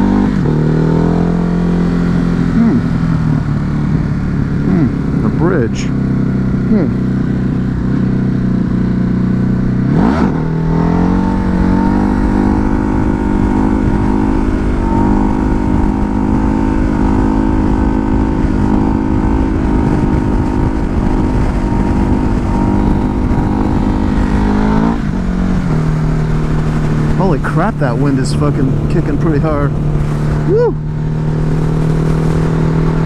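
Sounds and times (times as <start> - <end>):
motorcycle engine revving: 0.0 - 33.0
wind buffeting microphone: 0.0 - 33.0.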